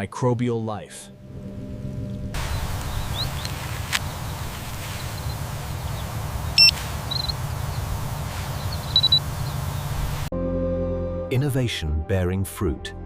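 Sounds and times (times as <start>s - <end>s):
even hiss with low rumble: 0.0s - 10.3s.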